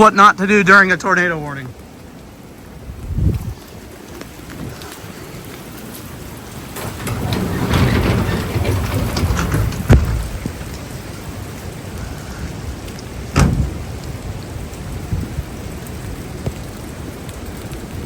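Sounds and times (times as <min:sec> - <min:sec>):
steady rain: 0:00.0 - 0:18.0
sharp thunder cracks: 0:13.3 - 0:14.0.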